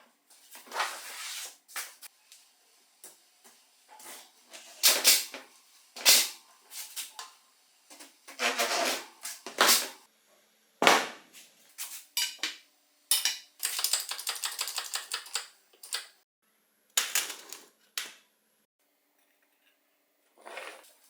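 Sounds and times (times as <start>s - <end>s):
ratchet clicks: 13.6s - 16.2s.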